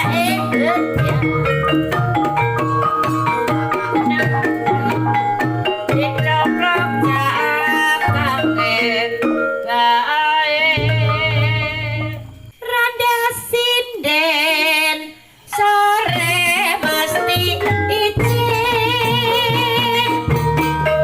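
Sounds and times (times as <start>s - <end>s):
pulsing drums: 0.0s - 8.8s
high melody with wide vibrato: 0.0s - 12.6s, 17.0s - 21.0s.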